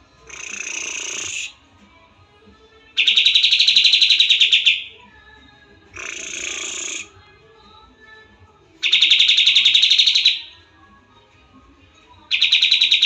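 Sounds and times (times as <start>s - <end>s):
bird trilling: 0.2s - 1.6s, 3.0s - 5.0s, 6.0s - 7.1s, 8.8s - 10.6s, 12.3s - 13.0s.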